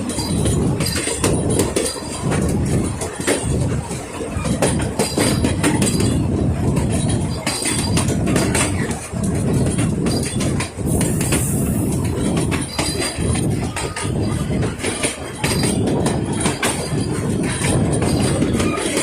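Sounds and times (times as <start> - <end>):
steam train rumbling: 0.0 - 19.0
wheels clattering over rail joints: 0.0 - 19.0
high hiss of steam: 10.9 - 11.9.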